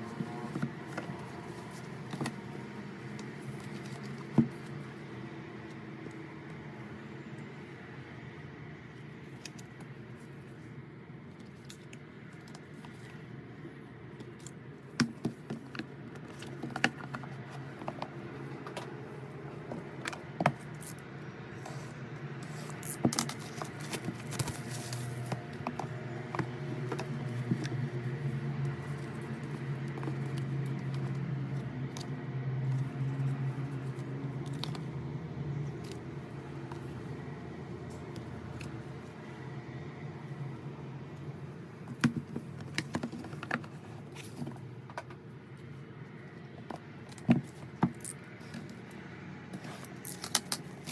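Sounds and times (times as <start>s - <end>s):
plastic and cardboard clicking and rustling: 0.0s - 6.7s, 11.4s - 21.0s, 21.7s - 34.9s, 41.8s - 49.0s, 49.6s - 50.9s.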